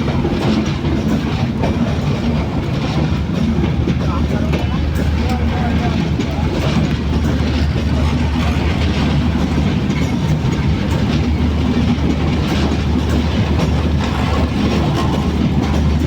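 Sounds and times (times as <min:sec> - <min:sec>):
passenger train rumbling: 0:00.0 - 0:16.0
wheels clattering over rail joints: 0:00.0 - 0:16.0.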